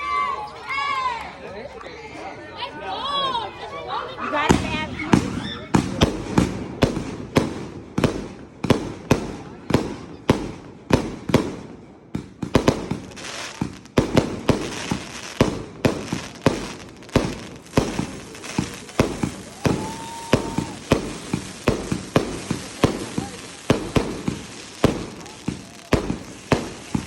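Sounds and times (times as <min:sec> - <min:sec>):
fireworks bangs: 0:04.5 - 0:27.0
firework whistle: 0:14.5 - 0:27.0.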